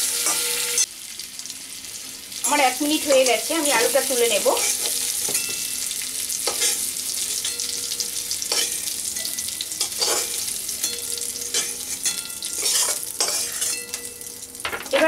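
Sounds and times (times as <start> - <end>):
potatoes sizzling in hot oil: 0.0 - 15.0
metal spatula scraping pan: 6.4 - 15.0.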